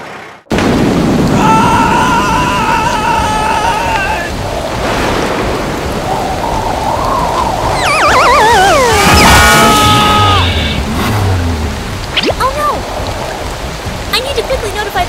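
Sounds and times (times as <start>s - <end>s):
heavy rain: 0.0s - 15.0s
wind: 0.0s - 15.0s
falling warbling tone: 5.9s - 11.4s, 12.1s - 12.8s
wavering whistling tone: 6.0s - 10.8s.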